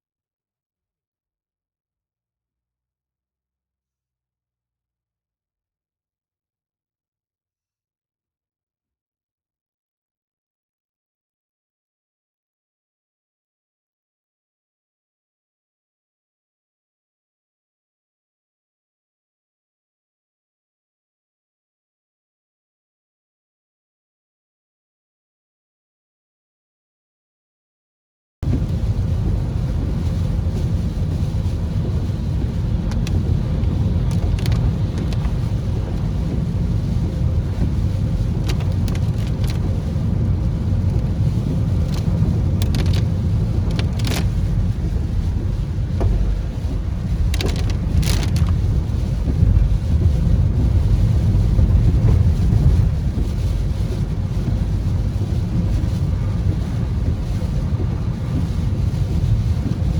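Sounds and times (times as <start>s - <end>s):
rain: 28.4s - 59.9s
wind buffeting microphone: 28.4s - 59.9s.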